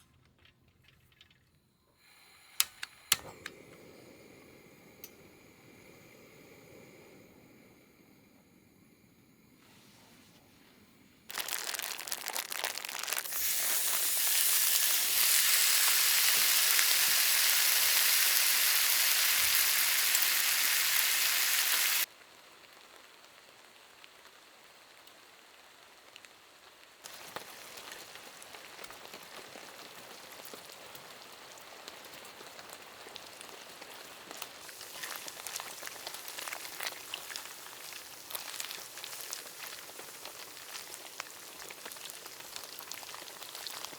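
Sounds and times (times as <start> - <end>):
rain drops ticking: 11.3 - 20.4, 21.8 - 43.9
heavy rain hiss: 11.3 - 22.1.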